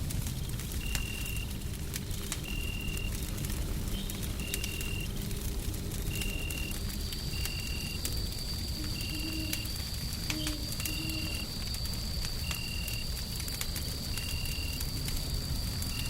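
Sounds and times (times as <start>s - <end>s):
wood fire crackling: 0.0s - 16.0s
thin high tone: 8.8s - 9.7s.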